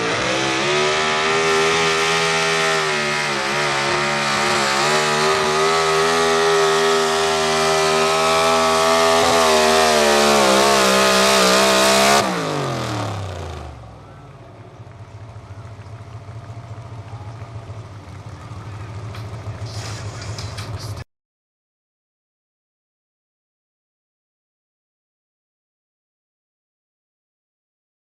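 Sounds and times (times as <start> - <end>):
truck engine at high revs: 0.0 - 21.0.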